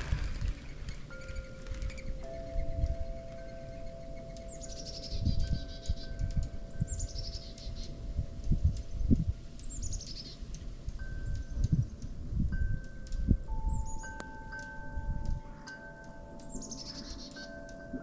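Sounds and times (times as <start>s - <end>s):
low gusty rumble: 0.0s - 4.2s, 5.0s - 14.0s
soft sustained tones: 0.0s - 18.0s
songbird singing high notes: 0.2s - 8.0s, 13.1s - 17.8s.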